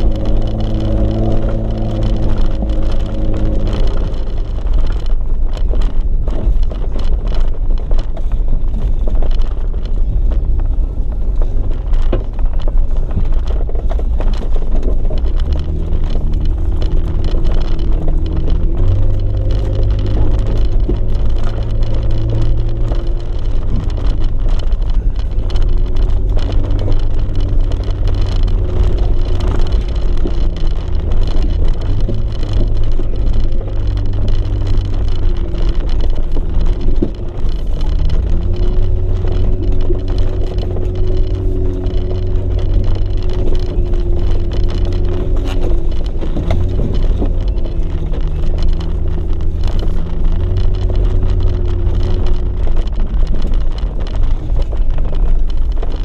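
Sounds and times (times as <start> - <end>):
engine rumbling at low speed: 0.0 - 56.0.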